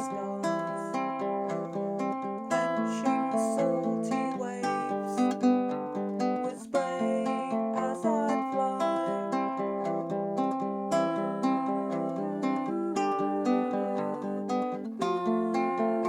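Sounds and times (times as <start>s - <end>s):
ukulele plucked chords and melody: 0.0s - 16.0s.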